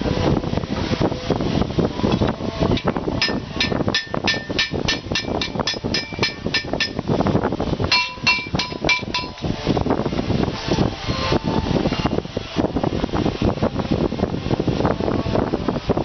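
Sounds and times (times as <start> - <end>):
steady background noise: 0.0 - 16.0
hammer tapping on sheet metal: 2.8 - 7.1, 7.9 - 9.5.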